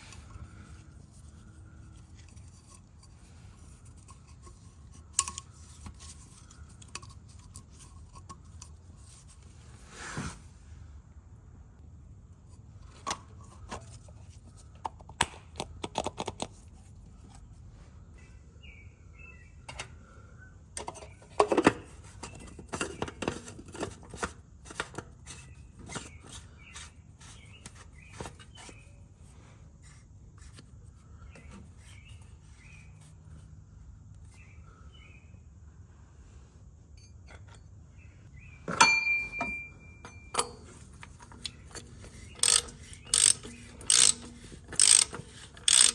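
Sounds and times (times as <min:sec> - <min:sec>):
tools clicking and knocking: 0:02.1 - 0:08.8, 0:38.7 - 0:45.9
metallic clatter and ring: 0:38.7 - 0:45.9.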